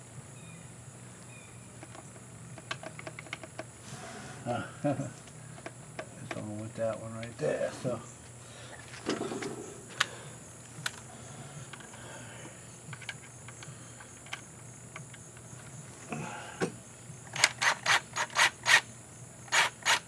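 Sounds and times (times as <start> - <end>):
crickets chirping: 0.0 - 20.0
ratchet wrench clicking: 17.3 - 18.9, 19.5 - 20.0.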